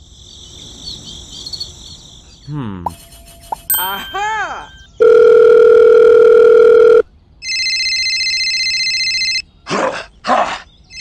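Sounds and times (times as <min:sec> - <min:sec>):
short voice sounds: 0:02.5 - 0:03.0
trilling electronic phone ring: 0:03.3 - 0:09.4.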